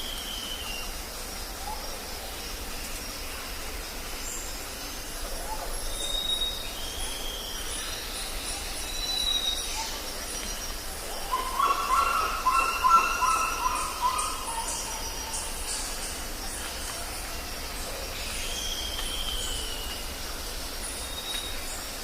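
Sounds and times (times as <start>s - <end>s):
background hiss: 0.0s - 22.0s
birds calling: 11.2s - 16.2s.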